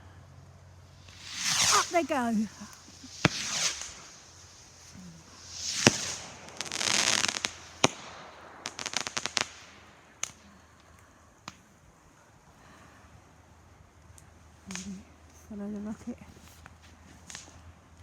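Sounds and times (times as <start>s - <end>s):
firework hissing crackle: 0.0s - 18.0s
rocket rising hiss: 0.9s - 10.4s
firework bangs: 1.0s - 10.5s, 14.7s - 14.9s.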